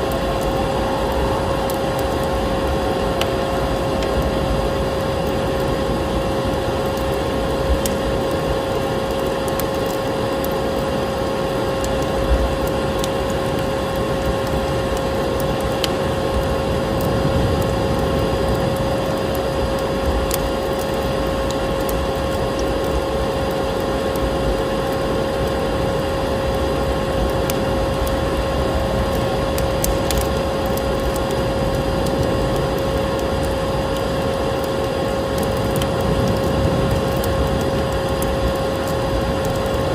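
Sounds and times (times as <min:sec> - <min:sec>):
vacuum cleaner droning: 0:00.0 - 0:07.2.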